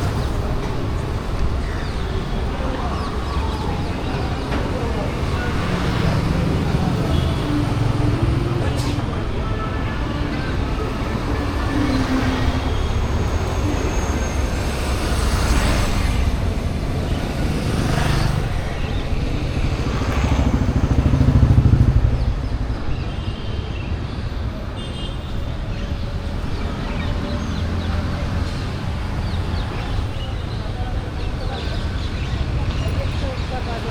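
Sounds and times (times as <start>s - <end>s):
traffic rumbling past: 0.0s - 24.6s.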